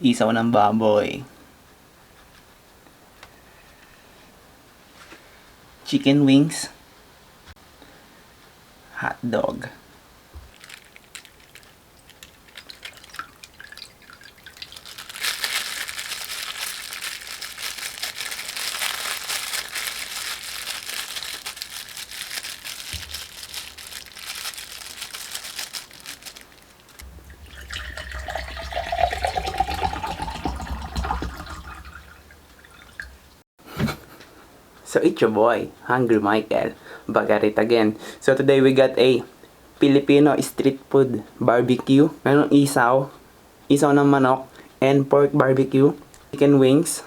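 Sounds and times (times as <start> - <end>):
liquid pouring into a glass: 12.6 - 14.8, 27.1 - 33.1.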